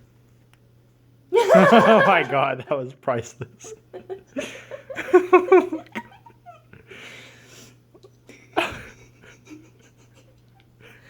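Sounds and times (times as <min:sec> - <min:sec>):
faint steady hum: 0:00.0 - 0:11.0
person giggling: 0:01.4 - 0:02.5, 0:08.6 - 0:10.3.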